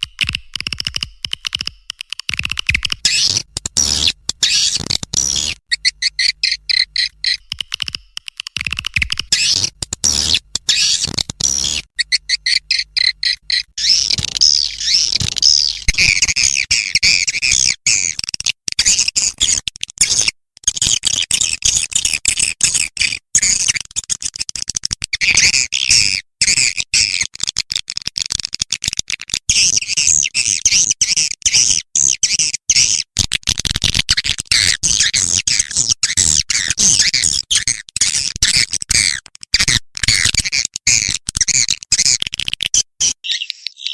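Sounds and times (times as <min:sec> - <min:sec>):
swiftlets twittering and chirping: 0:02.6 - 0:16.7, 0:43.0 - 0:43.9.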